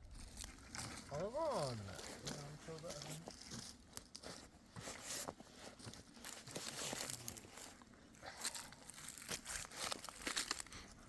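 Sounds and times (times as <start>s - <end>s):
rustling and crinkling: 0.0s - 11.0s.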